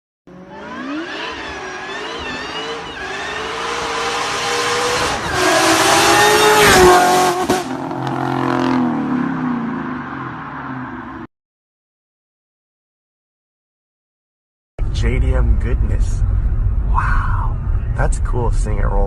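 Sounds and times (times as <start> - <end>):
car engine revving: 0.3 - 10.9.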